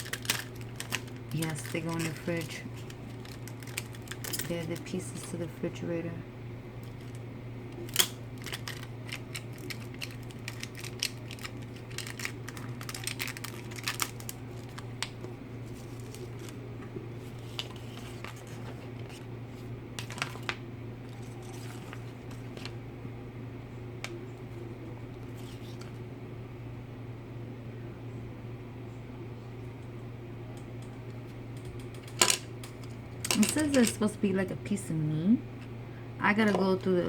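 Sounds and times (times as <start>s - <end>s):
packaging crinkling: 0.0s - 5.3s, 6.8s - 7.2s, 7.8s - 16.6s, 20.0s - 22.8s
steady low hum: 0.0s - 37.0s.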